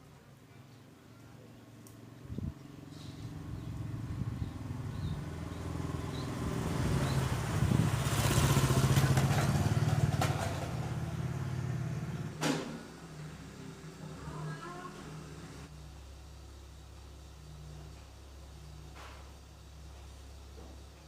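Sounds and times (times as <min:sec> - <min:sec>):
vehicle engine passing by: 0:02.3 - 0:15.7.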